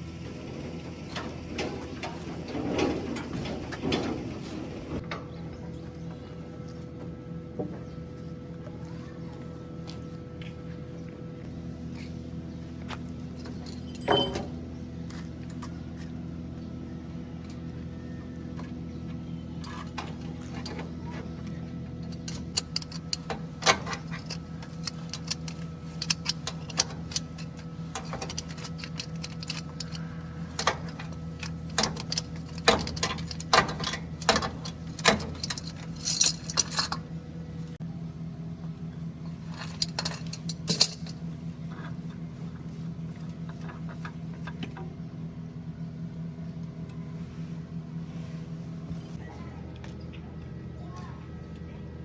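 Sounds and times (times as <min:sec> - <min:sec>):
low engine hum: 0:00.0 - 0:52.0
metallic clinks and rattles: 0:13.4 - 0:14.5, 0:22.0 - 0:37.7, 0:39.4 - 0:41.4.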